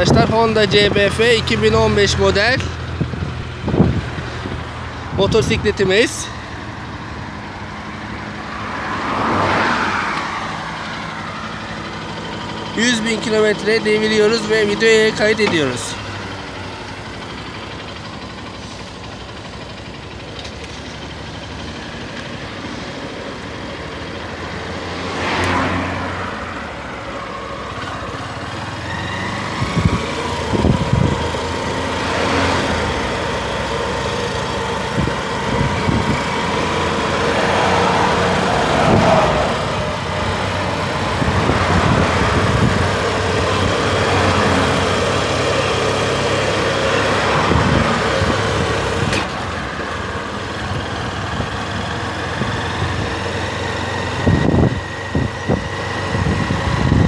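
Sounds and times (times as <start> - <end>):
motorcycle engine running: 10.8 - 24.8, 29.5 - 37.2.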